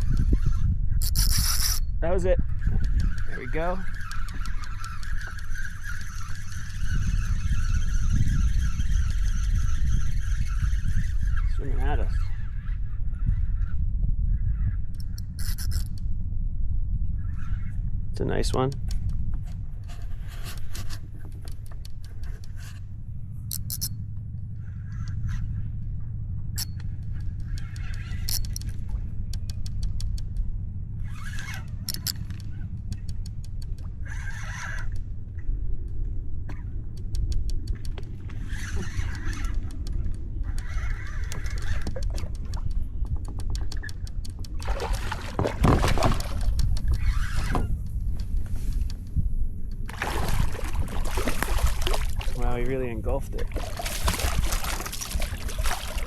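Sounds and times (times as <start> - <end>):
wind rumble on microphone: 0.0 - 56.0
sharp clicks: 26.6 - 30.5, 31.4 - 33.9, 37.0 - 38.1
water splashing around paddleboard: 41.6 - 47.7, 49.8 - 52.5, 53.2 - 56.0.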